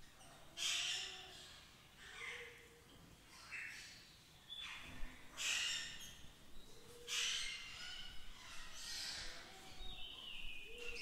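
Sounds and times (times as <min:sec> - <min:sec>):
wild birds chirping: 0:03.4 - 0:11.0.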